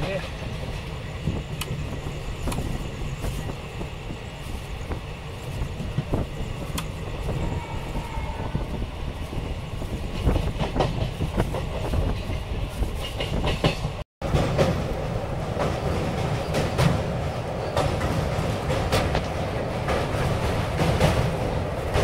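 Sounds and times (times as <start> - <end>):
train wheels rumbling: 0.0 - 22.0
clatter over rail joints: 10.1 - 22.0.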